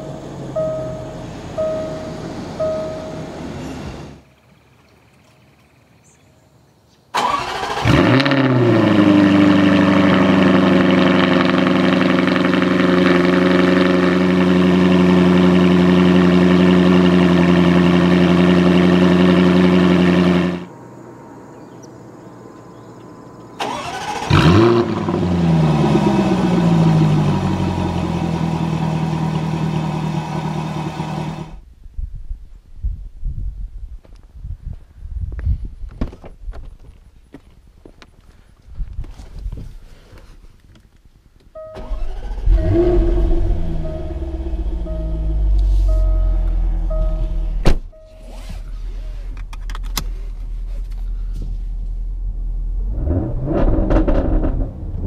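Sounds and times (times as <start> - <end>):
car engine starting and idling: 0.0 - 4.3, 7.1 - 31.6, 41.4 - 55.0.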